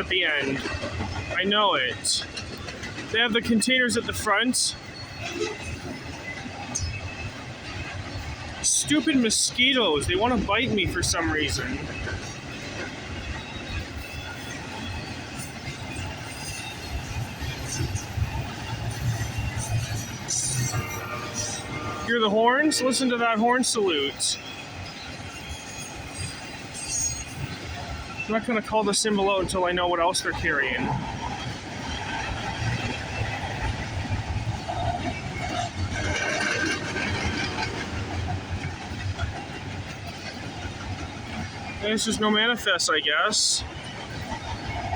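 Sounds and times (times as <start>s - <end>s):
freight train wheels rumbling: 0.0s - 44.9s.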